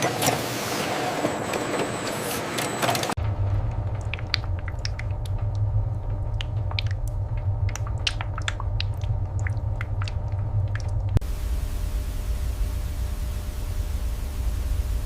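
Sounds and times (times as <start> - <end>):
faint hum: 1.8 - 15.0
low machine rumble: 3.2 - 15.0.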